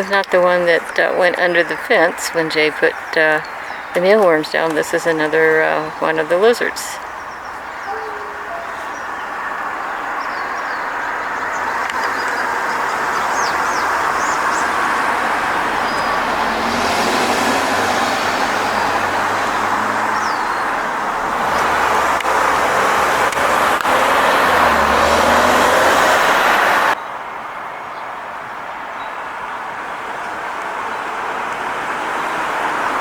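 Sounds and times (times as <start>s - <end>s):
cars going by: 0.0s - 27.0s, 29.3s - 33.0s
faint high bird chirps: 7.0s - 9.6s.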